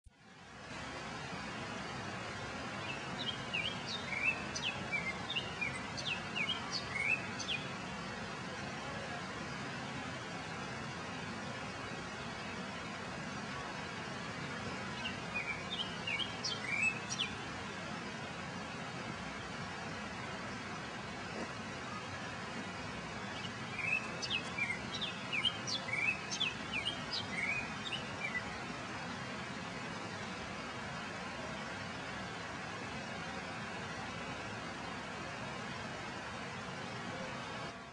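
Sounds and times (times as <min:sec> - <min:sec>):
outdoor background hiss: 0:00.0 - 0:37.9
small birds chirping: 0:01.8 - 0:31.1
small bird chirping: 0:14.9 - 0:17.4, 0:23.3 - 0:28.5.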